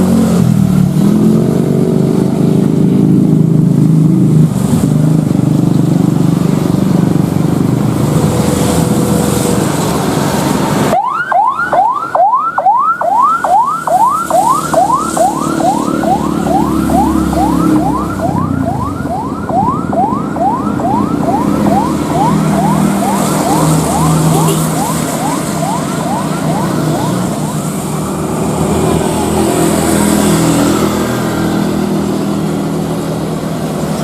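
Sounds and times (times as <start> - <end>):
loud steady rushing noise: 0.0 - 34.0
siren rising sweeps: 10.6 - 32.5.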